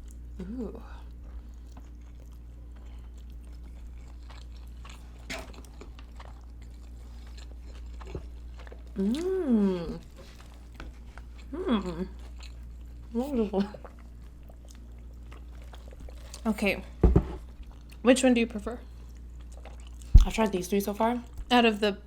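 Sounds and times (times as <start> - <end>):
chewing and biting food: 0.0 - 16.5, 17.4 - 18.0, 18.8 - 20.6
person humming mmm: 0.4 - 1.0, 9.0 - 10.1, 11.5 - 12.2.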